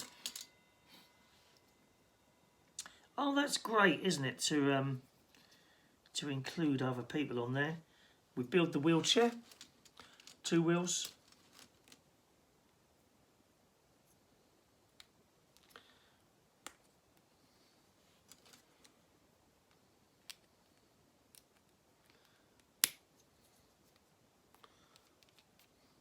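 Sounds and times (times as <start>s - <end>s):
plastic pieces clicking together: 9.2s - 10.4s.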